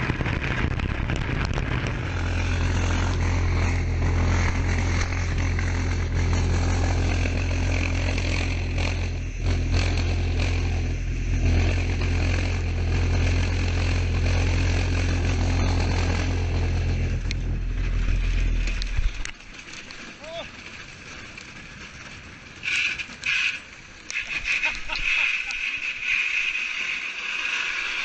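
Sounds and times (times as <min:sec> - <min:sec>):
boat engine humming: 0:00.0 - 0:24.6.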